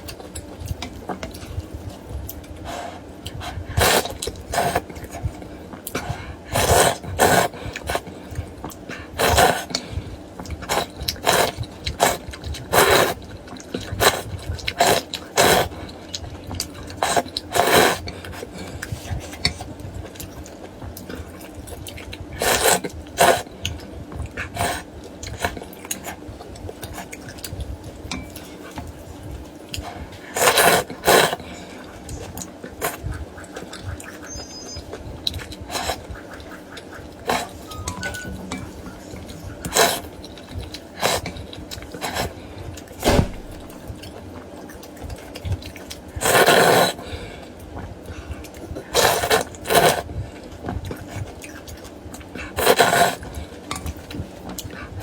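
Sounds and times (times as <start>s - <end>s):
chewing and mouth sounds: 0.0s - 55.0s
slurping noodle soup: 2.6s - 10.0s, 10.6s - 19.7s, 22.4s - 23.6s, 24.4s - 26.2s, 30.0s - 37.7s, 39.1s - 43.9s, 45.7s - 47.3s, 48.6s - 50.2s, 52.4s - 53.6s.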